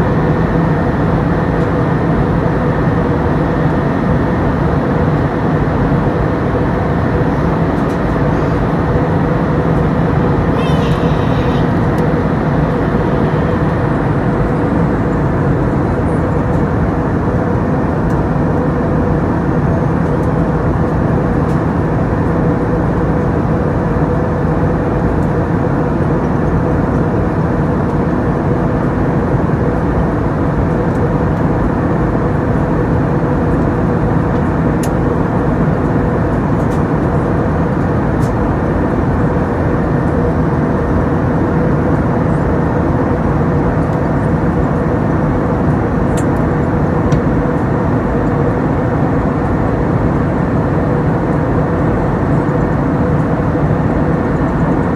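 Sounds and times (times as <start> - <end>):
airplane cabin engine drone: 0.0 - 54.9.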